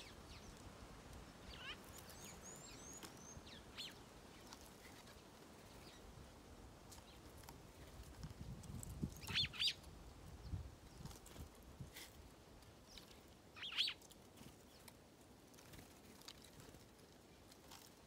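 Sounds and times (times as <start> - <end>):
small birds chirping: 0.0 - 6.2, 6.9 - 11.6, 12.6 - 15.0.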